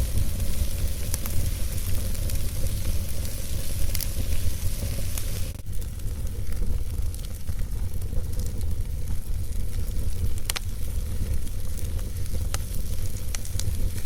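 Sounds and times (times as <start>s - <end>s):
fire crackles: 0.0s - 14.0s
wood fire burning: 0.0s - 14.0s.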